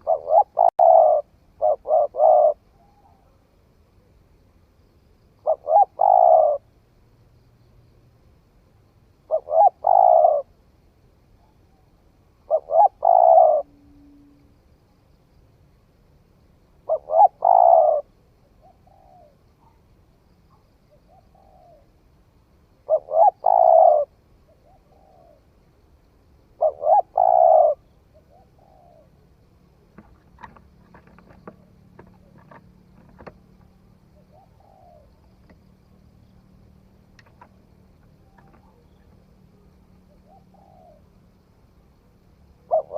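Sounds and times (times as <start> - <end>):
dove cooing: 0.0 - 3.4, 5.4 - 6.7, 9.3 - 10.5, 12.5 - 14.4, 16.8 - 19.8, 20.5 - 21.9, 22.8 - 25.5, 26.6 - 29.2, 29.8 - 35.5, 37.2 - 41.2, 42.5 - 42.9
faint clicks: 37.1 - 38.8.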